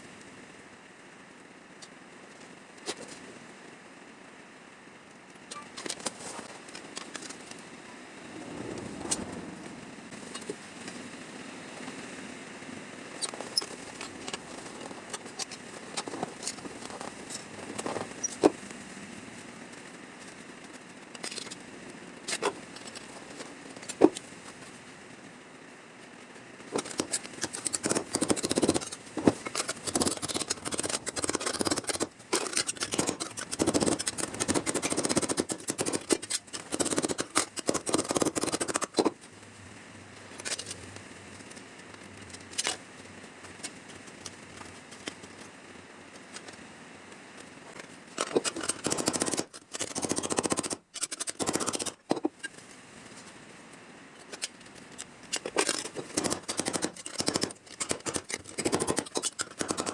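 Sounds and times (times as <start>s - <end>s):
hand tool scraping sheet metal: 26.8s - 39.1s, 55.4s - 59.9s
sharp clicks: 54.4s - 59.9s.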